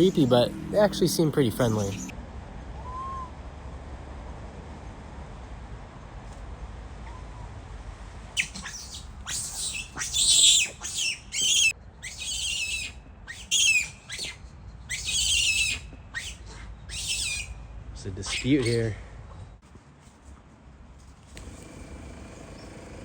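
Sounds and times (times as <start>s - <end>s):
monkeys screeching: 8.4s - 17.6s, 18.2s - 18.9s.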